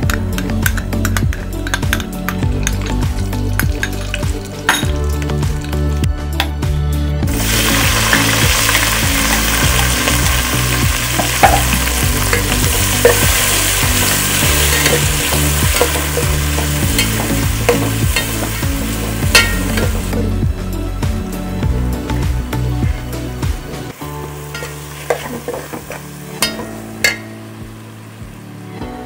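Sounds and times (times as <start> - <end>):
food sizzling in hot oil: 0.3 - 5.8, 7.3 - 20.6, 23.9 - 28.7
utensil knocking and scraping pan: 11.1 - 20.3, 24.5 - 27.3.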